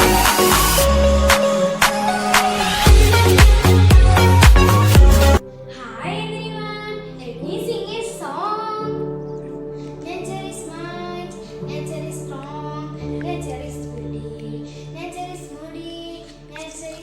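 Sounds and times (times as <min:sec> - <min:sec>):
child singing: 0:05.0 - 0:17.0.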